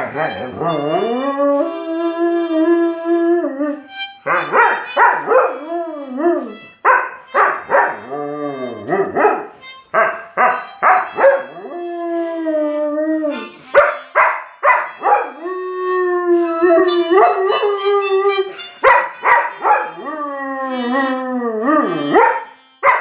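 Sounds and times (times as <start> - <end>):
person singing: 0.0 - 6.8, 7.9 - 9.0, 10.6 - 14.1, 14.9 - 22.8
dog howling: 0.0 - 9.4, 10.4 - 14.0, 14.9 - 22.5
dog barking and yipping: 4.2 - 5.6, 6.6 - 8.1, 9.1 - 11.5, 13.6 - 15.4, 16.9 - 20.0, 22.2 - 23.0.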